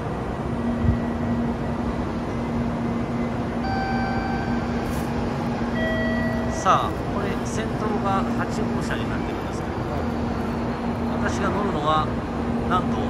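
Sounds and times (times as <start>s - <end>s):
train hum and rumble: 0.0s - 13.0s
high electronic tone: 5.7s - 6.7s.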